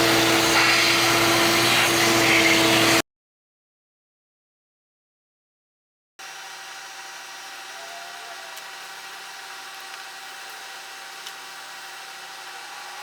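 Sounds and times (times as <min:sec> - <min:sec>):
steady machine hum: 0:06.2 - 0:13.0.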